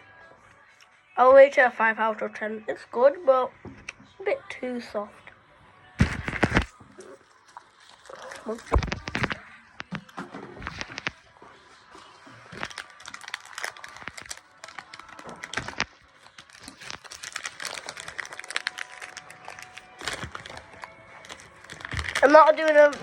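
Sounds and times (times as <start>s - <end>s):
sweet wrappers crinkling: 6.0s - 23.0s.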